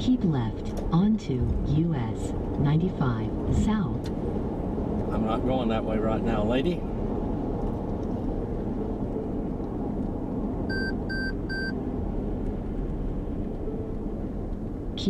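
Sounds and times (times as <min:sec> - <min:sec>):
car road and engine noise: 0:00.0 - 0:15.0
short electronic beeps: 0:10.7 - 0:11.7.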